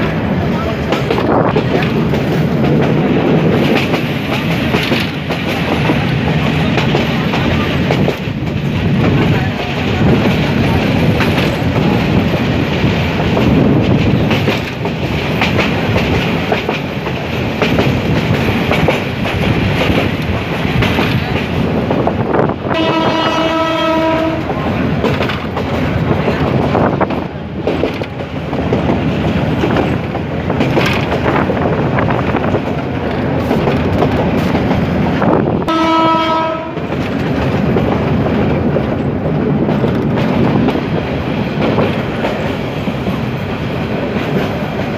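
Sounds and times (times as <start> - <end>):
train rumbling: 0.0 - 44.9
wheels clattering on rails: 0.0 - 44.9
locomotive horn blasts: 22.7 - 24.6, 35.7 - 36.9.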